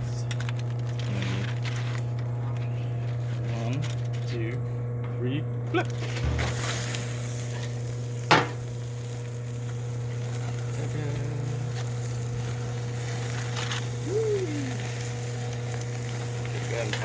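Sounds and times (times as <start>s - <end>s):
low hum: 0.0s - 16.7s
fish sizzling on a grill: 0.0s - 17.0s
sharp knock: 6.2s - 6.6s.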